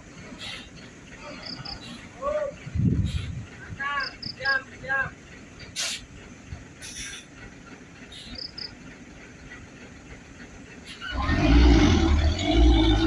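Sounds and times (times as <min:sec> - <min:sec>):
truck diesel engine under load: 0:00.0 - 0:13.0
low background rumble: 0:09.0 - 0:13.0.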